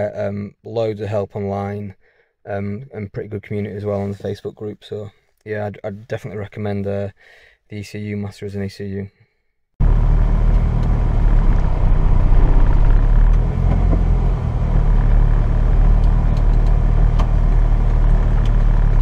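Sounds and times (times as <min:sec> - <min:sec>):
car engine at low revs: 0:09.8 - 0:19.0
road rumble: 0:09.8 - 0:19.0.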